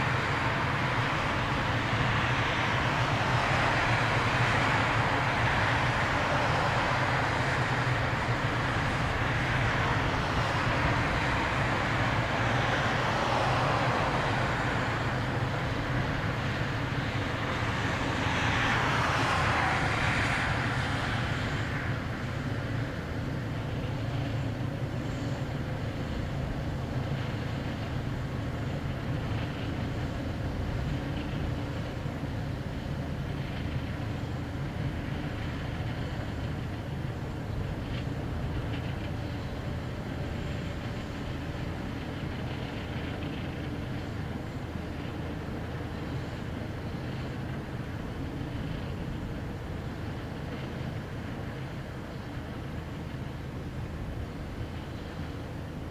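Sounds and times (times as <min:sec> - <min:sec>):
train passing: 0:00.0 - 0:55.9.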